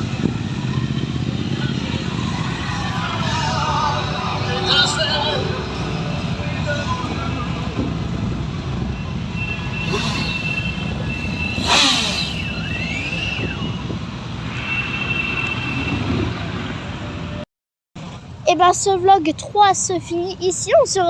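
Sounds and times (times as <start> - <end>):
vehicle rumble: 0.0 - 17.4.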